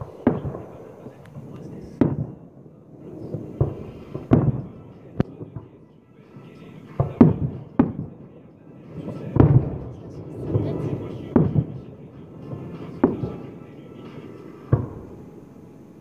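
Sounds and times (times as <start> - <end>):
firework bangs with rumble: 0.0 - 2.4, 3.2 - 5.7, 7.0 - 8.2, 9.1 - 13.6, 14.6 - 15.2.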